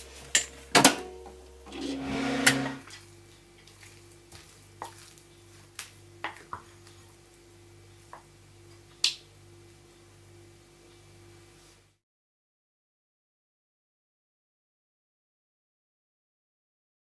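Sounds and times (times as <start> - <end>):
microwave buzzing hum: 0.0 - 12.0
wooden spoon stirring sticky dough: 3.6 - 7.2.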